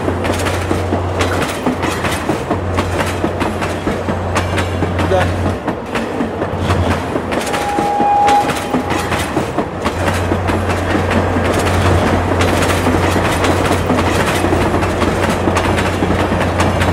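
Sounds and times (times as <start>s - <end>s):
clickety-clack of wheels: 0.0s - 16.9s
train wheels rumbling on rail: 0.0s - 16.9s
steady high tone: 7.4s - 9.2s.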